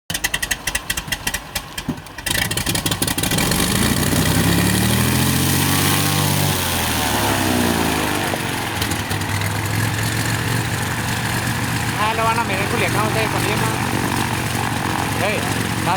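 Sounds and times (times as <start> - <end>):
propeller plane engine droning: 0.1 - 15.9
rapid crackling: 6.7 - 15.9.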